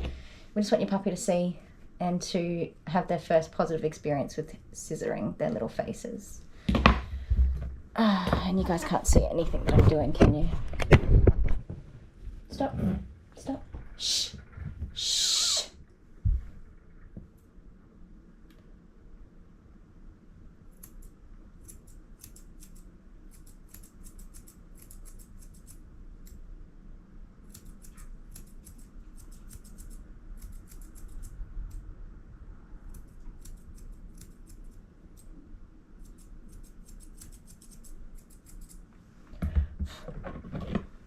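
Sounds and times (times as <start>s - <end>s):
scissors snipping hair: 20.7s - 26.4s, 27.4s - 31.8s, 32.8s - 35.3s, 36.0s - 38.8s
thump and rustle: 39.4s - 41.0s.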